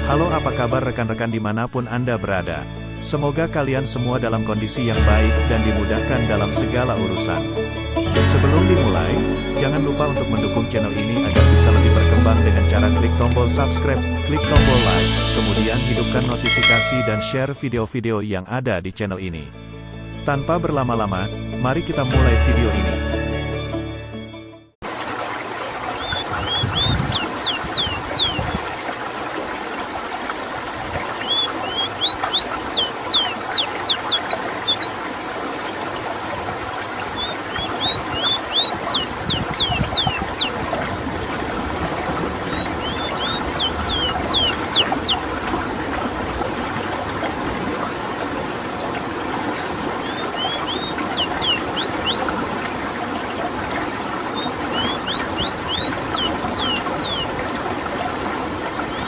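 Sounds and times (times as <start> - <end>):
running water: 8.7 - 17.5, 24.8 - 59.0
bird singing high sweeping notes: 16.4 - 17.6, 26.0 - 28.5, 31.2 - 35.1, 37.0 - 40.6, 42.4 - 45.3, 50.0 - 52.4, 54.3 - 57.4.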